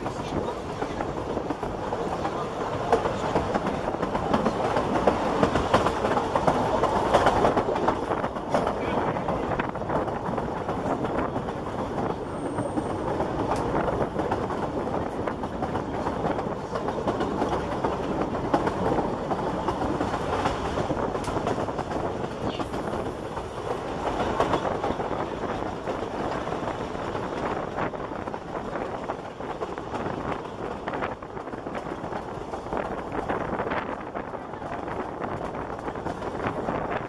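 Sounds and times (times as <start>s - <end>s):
clicks of train wheels: 0.0s - 37.0s
train wheels rumbling and rattling: 0.0s - 37.0s.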